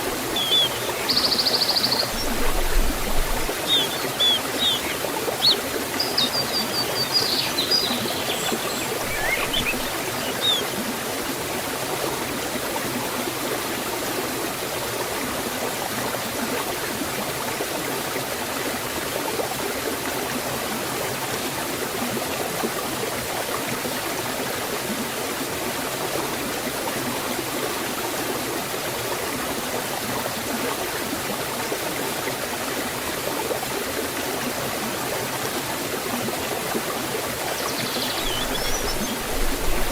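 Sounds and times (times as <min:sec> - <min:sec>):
waterfall and stream rushing: 0:00.0 - 0:39.9
bird chirping: 0:00.1 - 0:10.8, 0:37.5 - 0:39.9.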